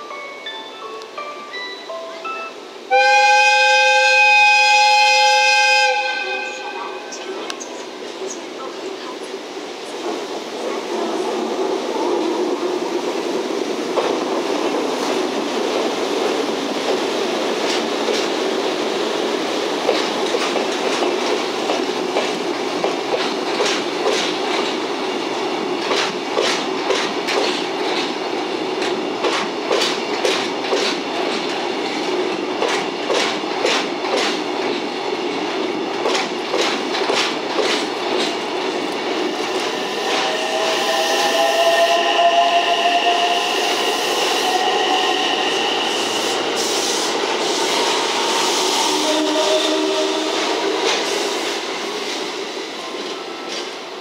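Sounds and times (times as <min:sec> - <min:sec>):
steady train rumble: 0:00.0 - 0:54.0
train wheels clicking over rail joints: 0:13.9 - 0:18.8, 0:19.7 - 0:40.4, 0:49.7 - 0:52.2.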